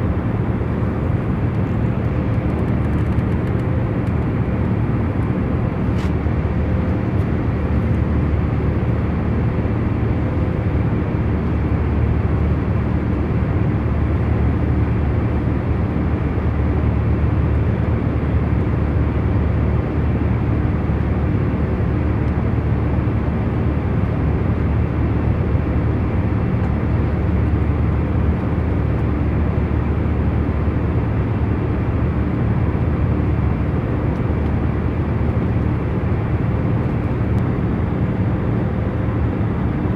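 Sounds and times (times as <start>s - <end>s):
airliner cabin hum: 0.0s - 16.4s, 25.4s - 39.9s.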